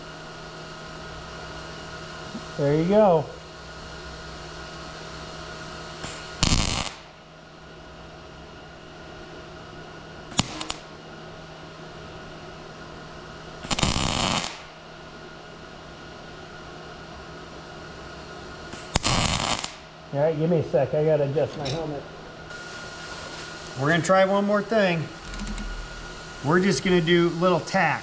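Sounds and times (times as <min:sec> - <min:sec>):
steady hum: 0:00.0 - 0:28.0
welding arc crackling: 0:05.6 - 0:07.3, 0:10.3 - 0:11.0, 0:13.2 - 0:15.2, 0:18.7 - 0:20.1, 0:21.8 - 0:28.0.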